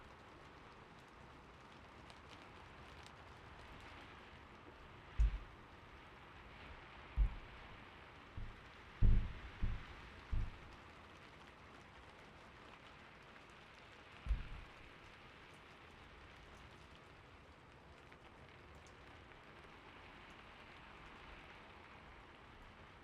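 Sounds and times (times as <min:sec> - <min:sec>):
gentle rain hiss: 0:00.0 - 0:23.0
short low thump: 0:05.2 - 0:05.5, 0:07.2 - 0:07.7, 0:08.4 - 0:10.7, 0:14.3 - 0:14.7.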